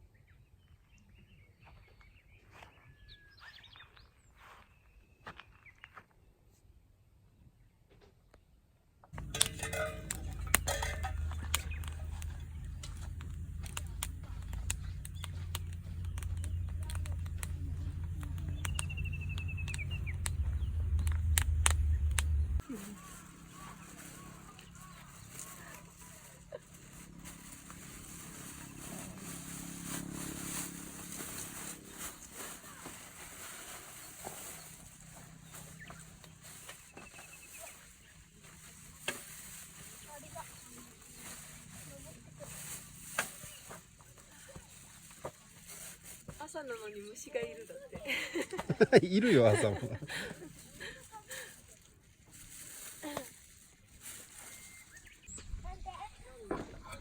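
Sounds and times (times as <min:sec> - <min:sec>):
steady low rumble: 0:09.2 - 0:26.0
sharp clicks: 0:11.2 - 0:22.6
bird trill: 0:13.8 - 0:25.4.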